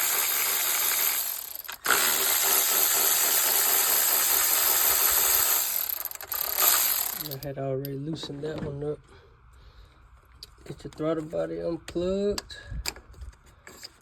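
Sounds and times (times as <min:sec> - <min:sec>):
power tool whirring: 0:00.0 - 0:07.4.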